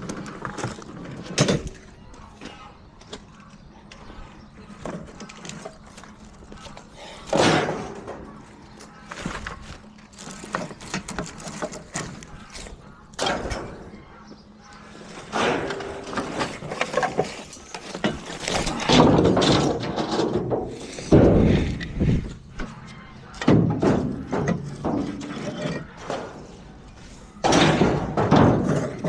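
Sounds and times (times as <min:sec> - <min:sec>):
junk being tossed: 0:15.2 - 0:22.0, 0:27.3 - 0:29.0.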